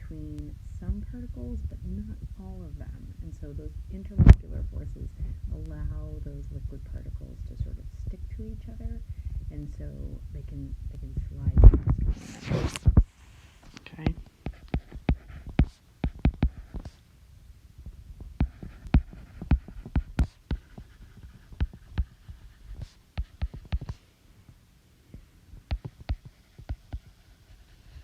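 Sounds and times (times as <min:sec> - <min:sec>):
pen tapping on writing surface: 0:14.5 - 0:17.0, 0:22.8 - 0:24.0.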